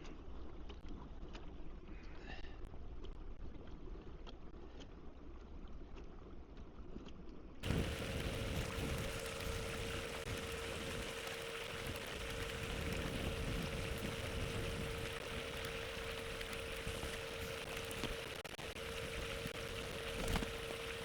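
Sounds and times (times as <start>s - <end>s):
water lapping against kayak hull: 3.6s - 21.0s
electric motor whine: 7.6s - 21.0s
faint clicks: 7.6s - 21.0s.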